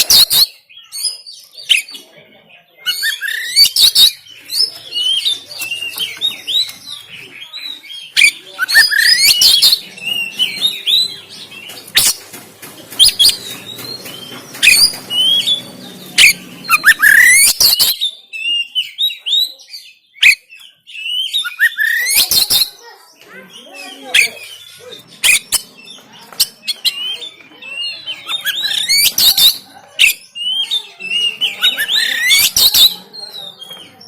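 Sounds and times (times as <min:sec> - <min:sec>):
bird singing varied song: 0:00.0 - 0:34.0.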